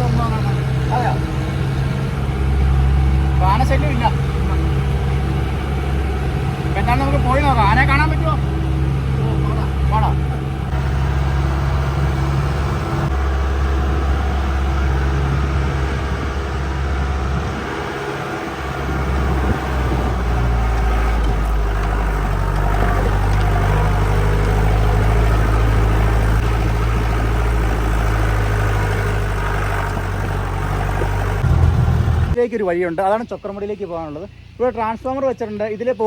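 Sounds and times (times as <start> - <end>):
jeep engine droning: 0.0 - 32.4.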